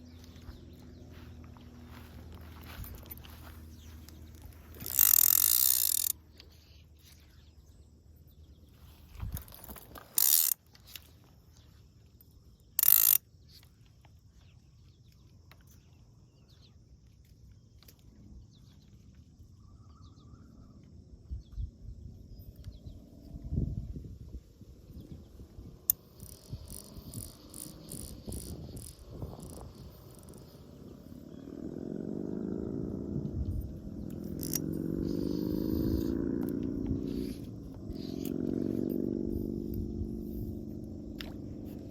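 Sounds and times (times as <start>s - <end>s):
fishing reel ratchet buzzing: 1.5s - 7.1s, 9.2s - 11.1s, 12.6s - 13.3s, 25.8s - 30.8s, 33.6s - 41.9s.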